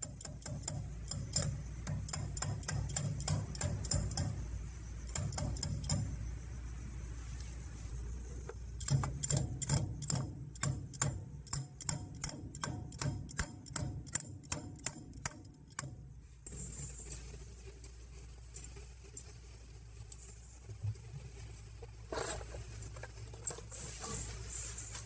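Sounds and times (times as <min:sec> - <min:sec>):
sharp evenly spaced knocks: 0:00.0 - 0:04.4, 0:08.8 - 0:16.0.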